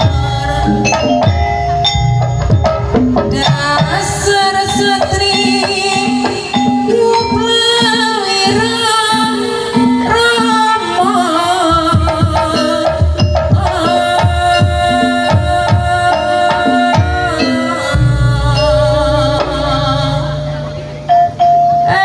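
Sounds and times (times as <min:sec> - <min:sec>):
drums: 0:00.0 - 0:22.0
wavering melody line: 0:00.0 - 0:22.0.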